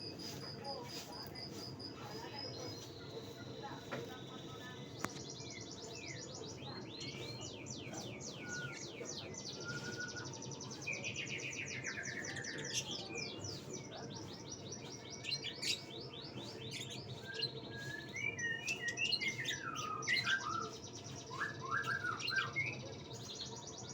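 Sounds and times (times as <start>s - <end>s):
bird singing chirps and whistles: 8.2s - 13.0s, 16.7s - 22.8s.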